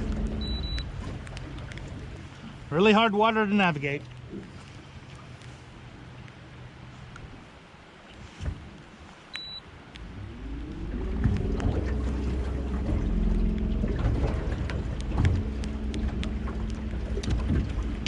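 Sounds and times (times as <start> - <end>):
boat motor running: 0.0 - 6.8, 10.0 - 18.0
short electronic beep: 0.4 - 0.8, 9.4 - 9.6.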